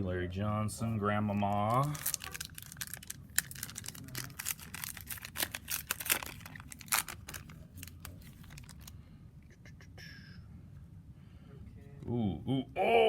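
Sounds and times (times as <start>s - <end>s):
card pack wrapper tearing open: 1.4s - 9.0s.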